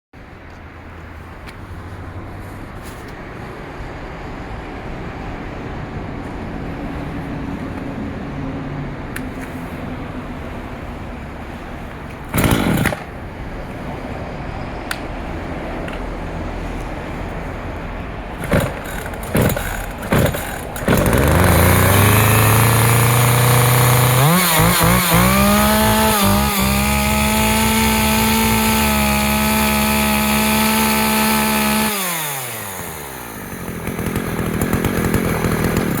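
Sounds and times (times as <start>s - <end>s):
chainsaw engine revving: 12.2s - 13.3s, 18.4s - 36.0s.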